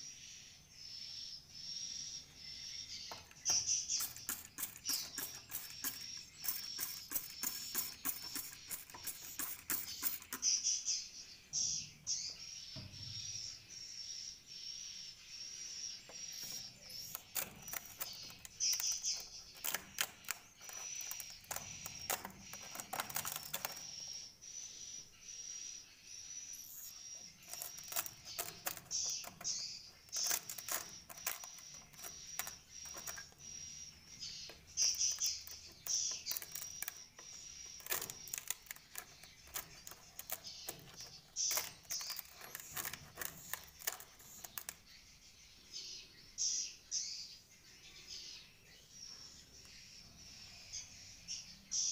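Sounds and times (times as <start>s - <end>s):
rapid irregular clicking: 2.9s - 10.8s, 16.0s - 24.2s, 26.6s - 45.0s.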